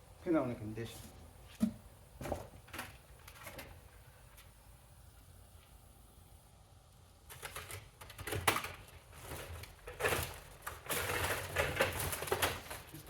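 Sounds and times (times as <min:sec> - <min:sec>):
vacuum parts knocking and scraping: 0:07.3 - 0:13.0.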